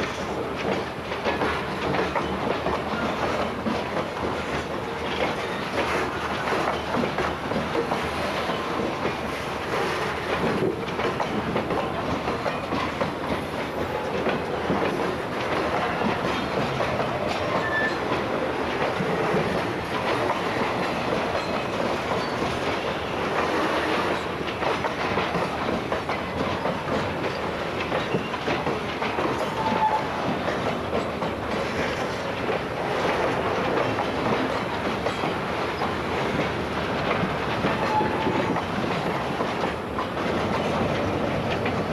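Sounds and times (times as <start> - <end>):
wheels clicking over rail joints: 0.0 - 41.9
wheel squeals: 17.4 - 18.1, 21.4 - 22.6.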